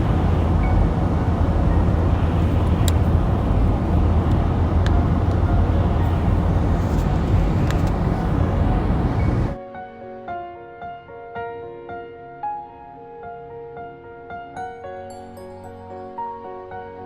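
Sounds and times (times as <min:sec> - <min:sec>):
car cabin rumble: 0:00.0 - 0:09.6.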